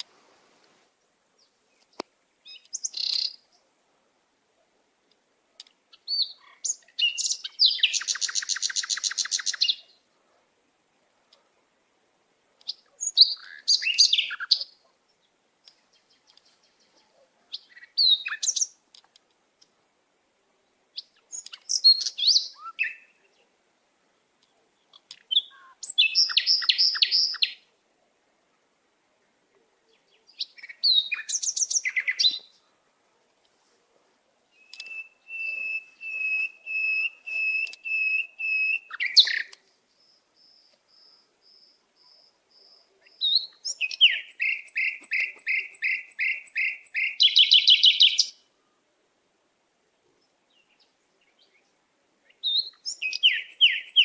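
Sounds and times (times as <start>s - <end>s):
songbird singing trills: 0.9s - 3.7s, 5.6s - 10.1s, 12.6s - 19.0s, 20.9s - 23.6s, 24.4s - 27.7s, 29.9s - 32.7s, 34.5s - 48.5s, 50.2s - 54.0s.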